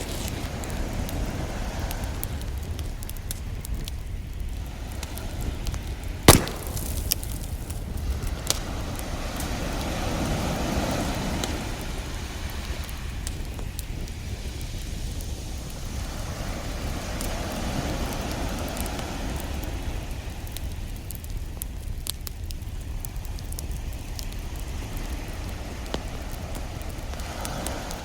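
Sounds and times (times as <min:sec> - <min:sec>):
ocean waves: 0:00.0 - 0:02.6, 0:04.6 - 0:13.2, 0:15.6 - 0:20.4, 0:24.8 - 0:28.0
wood fire crackling and popping: 0:00.0 - 0:28.0.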